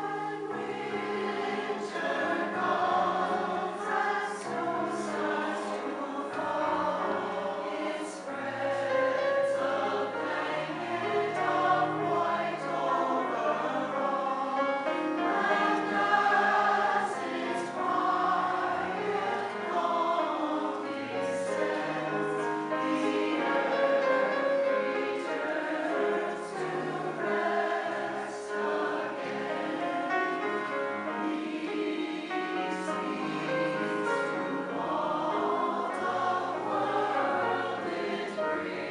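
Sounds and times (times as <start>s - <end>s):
community chorus singing: 0.0s - 38.9s.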